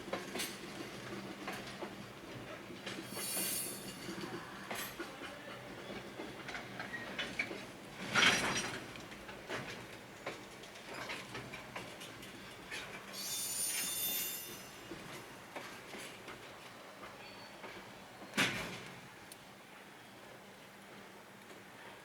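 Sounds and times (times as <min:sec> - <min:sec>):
train clank: 0:00.0 - 0:19.1
high wheel squeal: 0:13.2 - 0:14.8.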